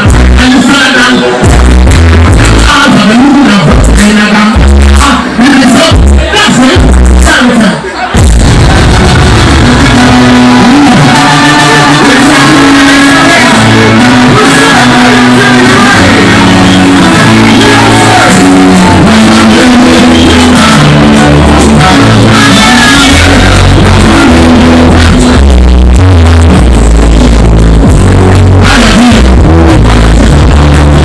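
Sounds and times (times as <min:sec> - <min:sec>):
sustained bass line: 0:00.0 - 0:07.4, 0:08.2 - 0:31.0
loud live music: 0:00.0 - 0:31.0
people singing and shouting: 0:00.0 - 0:31.0.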